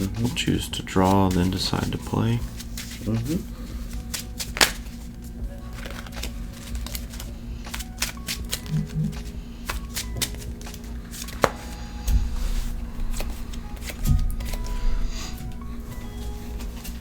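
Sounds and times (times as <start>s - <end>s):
quiet background music: 0.0s - 17.0s
cards clicking and slapping: 2.6s - 3.3s, 3.9s - 5.1s, 5.7s - 14.8s
card snapping: 4.1s - 5.0s, 5.8s - 11.7s.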